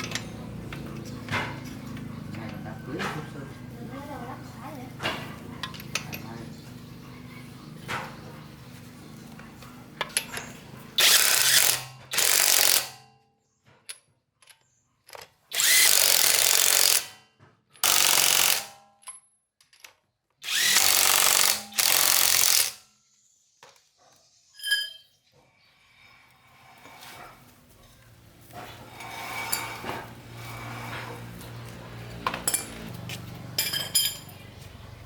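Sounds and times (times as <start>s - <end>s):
power tool running in bursts: 15.6s - 17.1s, 17.8s - 18.7s, 20.4s - 22.8s.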